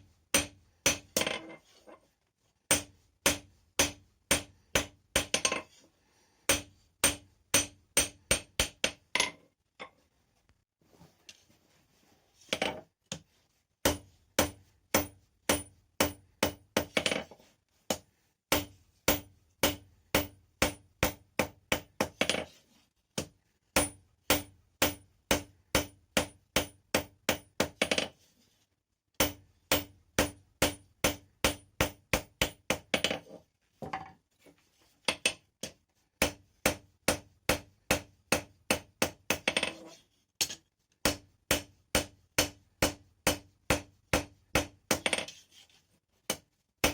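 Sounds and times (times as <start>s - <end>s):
hammer striking metal on anvil: 0.3s - 1.3s, 2.7s - 5.6s, 6.5s - 9.0s.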